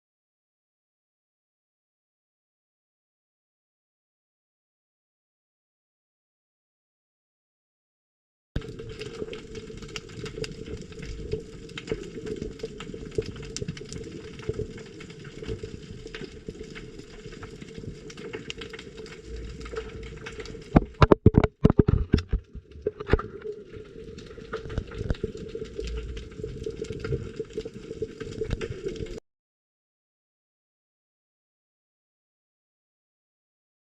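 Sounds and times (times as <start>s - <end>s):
underwater crackling clicks: 8.6s - 29.2s
loud underwater knocks: 20.7s - 23.2s.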